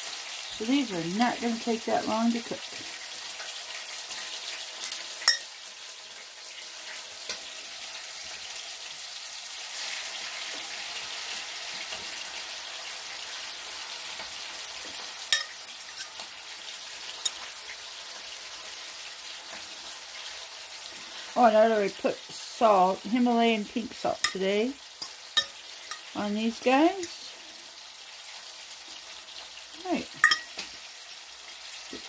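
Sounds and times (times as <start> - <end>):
chicken sizzling in hot oil: 0.0 - 32.0.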